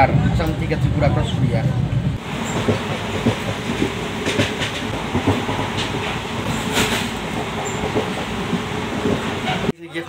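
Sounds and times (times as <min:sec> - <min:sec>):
train coach rumbling on rails: 0:00.0 - 0:09.8
wheels knocking and clacking: 0:02.2 - 0:09.7.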